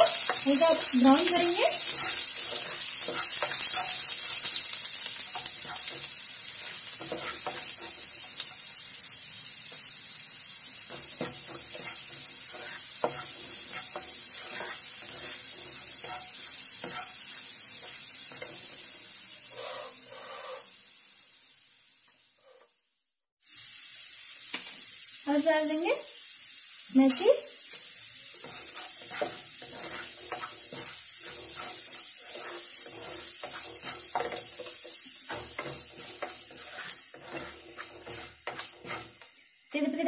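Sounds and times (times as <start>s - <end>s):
spatula scraping and tapping pan: 0.0s - 8.6s, 10.9s - 18.8s, 27.1s - 39.4s
garlic sizzling in hot oil: 0.0s - 22.6s, 23.4s - 40.0s.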